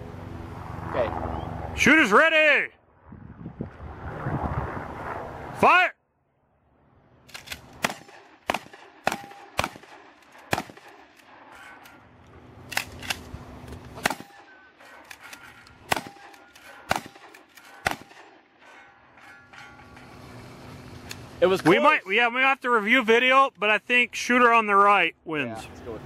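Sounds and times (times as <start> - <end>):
shotgun shots: 7.4 - 11.5, 14.0 - 18.6.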